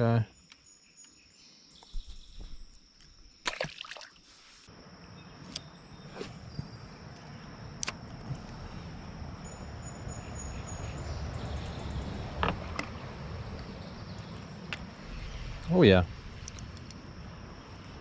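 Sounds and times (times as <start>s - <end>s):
high insect trill: 0.0s - 12.4s, 13.0s - 18.0s
low rumble of creek: 6.0s - 18.0s.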